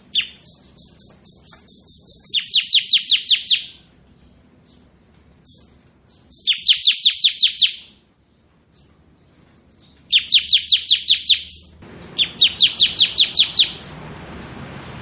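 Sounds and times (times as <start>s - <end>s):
bird drilling trill: 0.0s - 3.9s, 5.4s - 8.0s, 9.7s - 14.0s.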